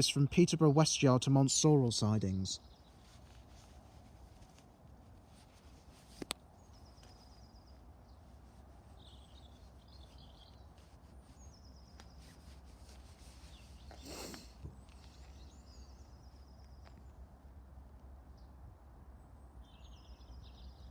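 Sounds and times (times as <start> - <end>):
faint bird chirps: 6.6 - 17.2.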